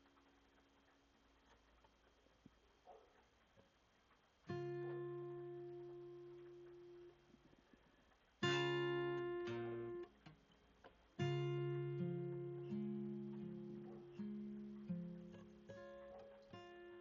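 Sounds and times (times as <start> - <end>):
acoustic guitar chords ringing: 4.5 - 7.2, 8.4 - 10.4, 11.2 - 17.0.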